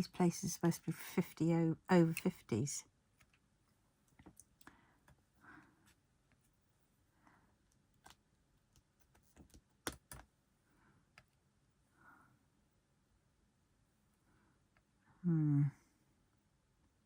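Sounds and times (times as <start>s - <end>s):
faint clicks and taps: 3.1s - 6.6s, 7.6s - 10.3s.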